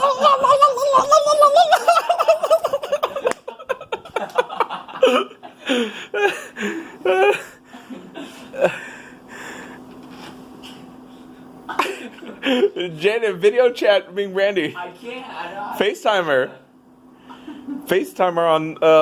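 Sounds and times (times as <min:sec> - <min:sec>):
people laughing and giggling: 0:00.0 - 0:08.8.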